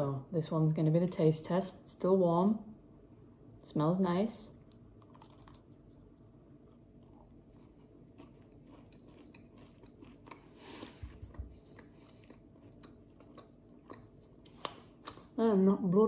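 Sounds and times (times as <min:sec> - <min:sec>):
person chewing cookie: 0:04.7 - 0:15.3.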